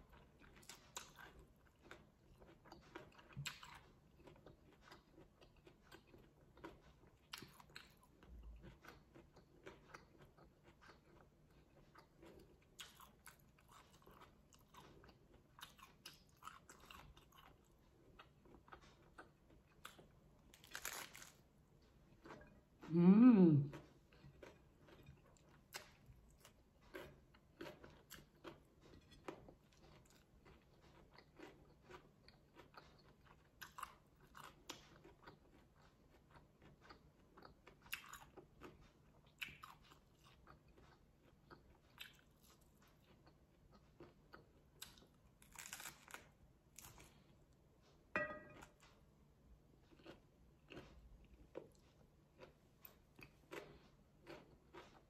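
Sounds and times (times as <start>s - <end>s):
person chewing and crunching: 0.0s - 55.0s
crackles of bites into lettuce: 20.5s - 21.4s, 44.8s - 47.3s.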